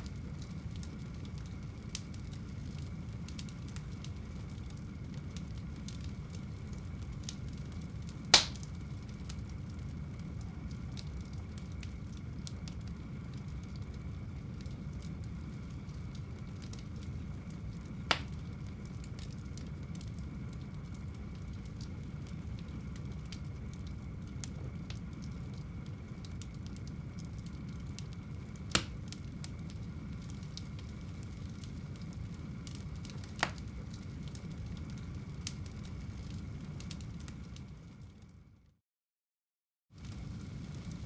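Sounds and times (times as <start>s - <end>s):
sharp pops from fire: 0.0s - 37.7s
fire crackling in fireplace: 0.0s - 38.8s, 40.0s - 41.0s.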